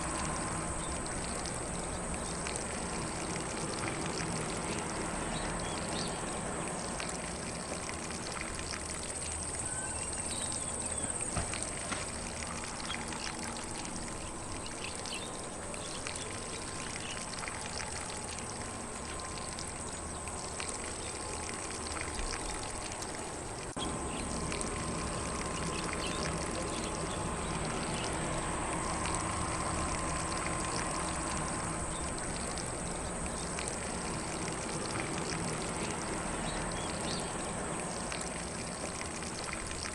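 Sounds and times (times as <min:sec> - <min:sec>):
lawn sprinkler spraying water: 0:00.0 - 0:39.9
faint bird chirps: 0:09.6 - 0:11.3.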